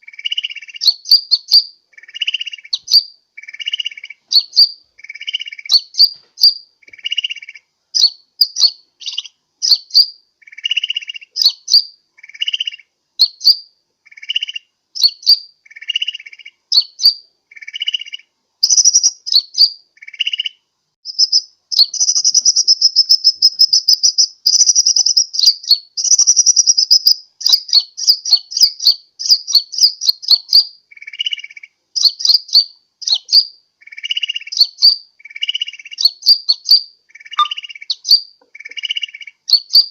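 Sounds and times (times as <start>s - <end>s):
bird twittering: 0.0s - 39.9s
bird chip notes: 37.4s - 37.9s.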